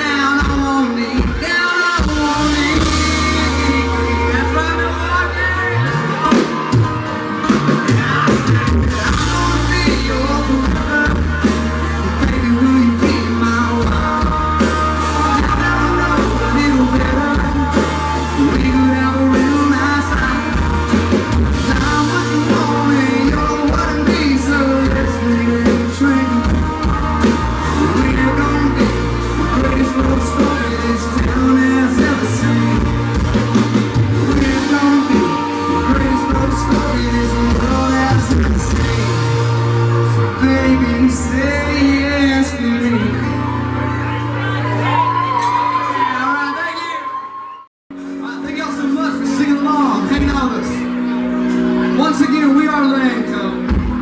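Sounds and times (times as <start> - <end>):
steady drum beat: 0.0 - 41.7
person singing: 0.0 - 46.9
bass: 0.0 - 47.2, 47.9 - 54.0
guitar: 0.0 - 54.0.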